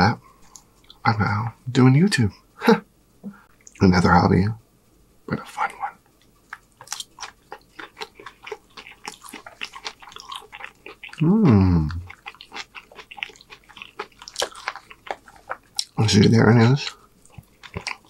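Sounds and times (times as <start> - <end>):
wet chewing and mouth clicks: 6.2 - 18.0
man humming: 11.2 - 12.1.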